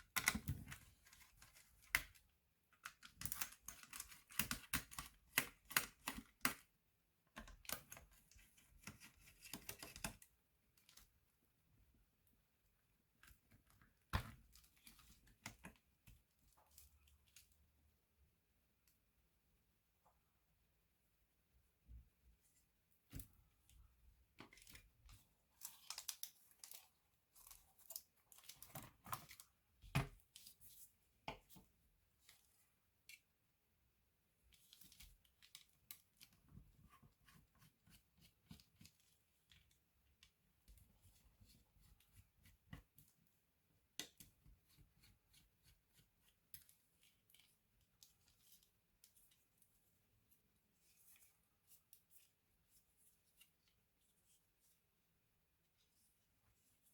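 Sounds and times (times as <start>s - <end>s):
laptop parts and tools handled: 0.0s - 6.7s, 24.4s - 33.2s.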